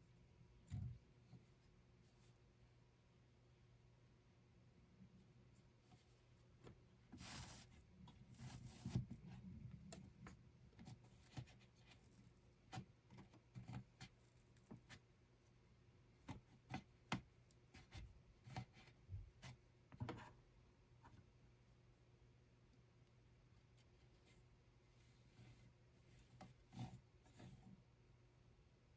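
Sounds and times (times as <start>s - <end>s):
soft rubbing and rustling: 5.2s - 15.1s, 23.6s - 27.8s.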